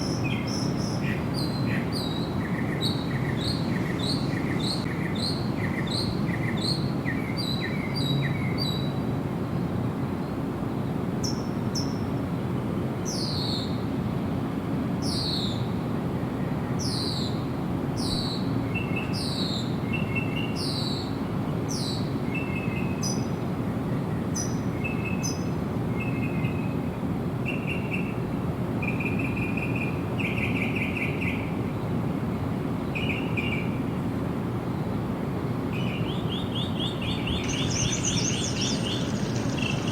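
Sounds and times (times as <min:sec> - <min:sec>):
low background hiss: 0:28.2 - 0:39.9
quick repeated bird chirps: 0:35.9 - 0:39.9
downward sweeping bird notes: 0:37.0 - 0:39.9
trilled bird notes: 0:37.2 - 0:39.9.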